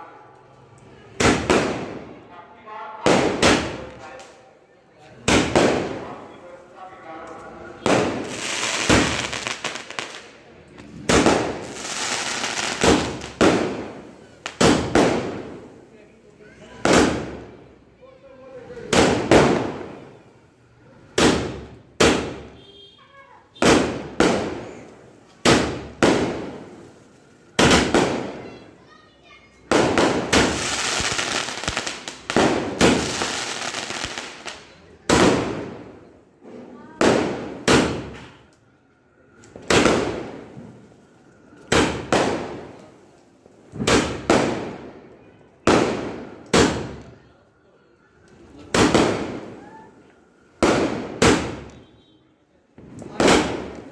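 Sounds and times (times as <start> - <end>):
firework cake bangs: 1.2 - 2.2, 5.2 - 6.2, 11.0 - 15.6, 16.8 - 17.5, 21.2 - 22.9, 23.6 - 24.8, 25.4 - 26.9, 27.6 - 28.6, 29.7 - 35.9, 37.0 - 38.4, 39.6 - 40.7, 41.7 - 42.8, 43.7 - 44.9, 45.7 - 47.2, 48.7 - 49.8, 50.6 - 52.0, 52.8 - 53.9.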